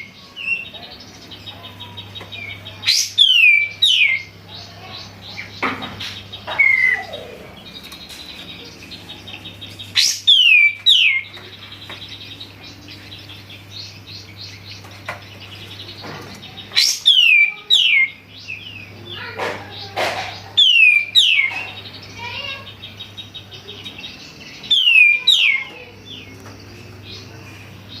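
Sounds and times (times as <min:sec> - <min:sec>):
bird chattering: 0:00.0 - 0:28.0
bulbul whistled song: 0:10.0 - 0:11.2, 0:16.8 - 0:18.2, 0:20.6 - 0:21.5, 0:24.7 - 0:25.7.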